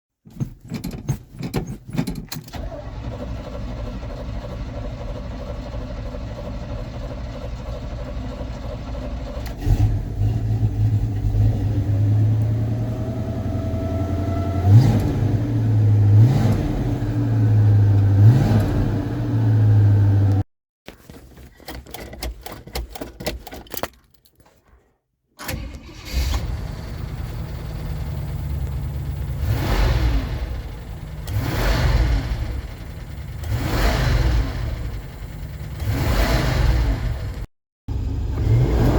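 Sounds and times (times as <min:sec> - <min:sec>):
pickup engine starting and idling: 0:02.4 - 0:16.6, 0:25.4 - 0:38.9.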